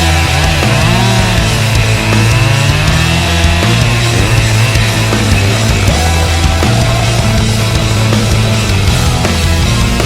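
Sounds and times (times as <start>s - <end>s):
loud rock music: 0.0s - 10.0s.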